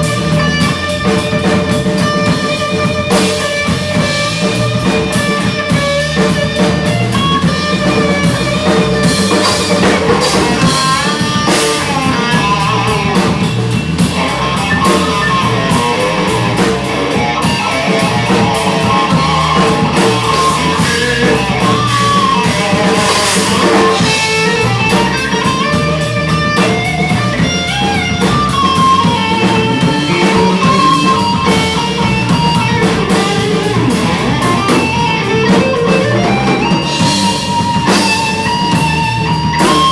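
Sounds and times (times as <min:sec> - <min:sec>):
drum kit: 0:00.0 - 0:39.9
guitar with bending notes: 0:00.0 - 0:39.9
live rock band playing: 0:00.0 - 0:39.9.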